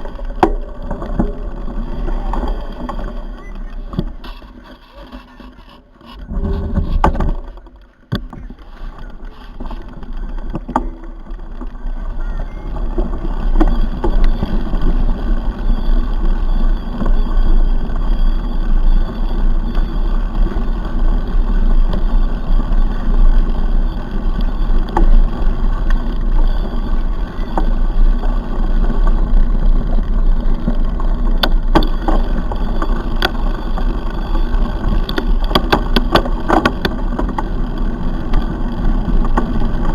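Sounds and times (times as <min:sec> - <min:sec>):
bike rolling noise: 0:00.0 - 0:39.9
wind rumble on microphone: 0:00.0 - 0:39.9
clicks and rattles: 0:24.3 - 0:39.9.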